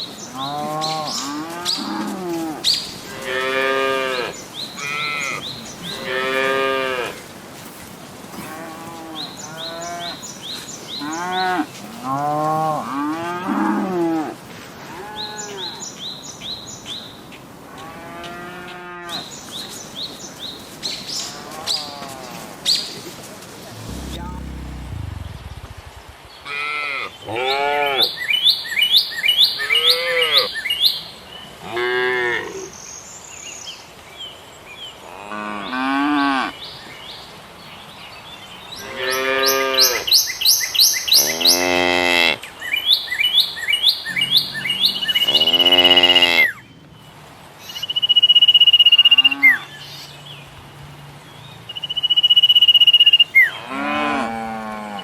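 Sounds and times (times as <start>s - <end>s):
cattle mooing: 8.3s - 10.2s, 23.7s - 28.1s, 41.3s - 42.4s, 44.3s - 46.6s, 53.6s - 55.0s.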